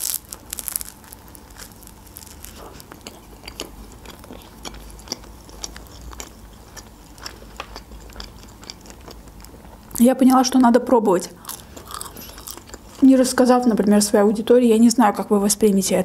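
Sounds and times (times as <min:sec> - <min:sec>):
chewing toasted sandwich: 0:00.0 - 0:10.0, 0:11.4 - 0:13.0.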